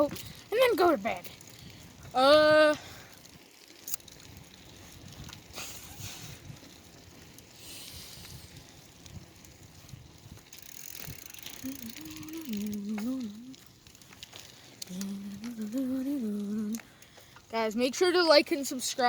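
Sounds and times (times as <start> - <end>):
bike clicks and rattles: 0.0 - 19.0
bicycle riding hiss: 0.1 - 19.0
person humming a tune: 11.6 - 13.5, 14.9 - 16.8.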